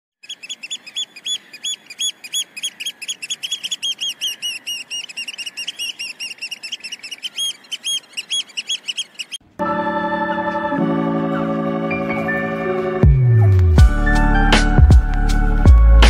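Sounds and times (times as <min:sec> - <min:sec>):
small bird chirping rapidly: 0:00.2 - 0:09.4.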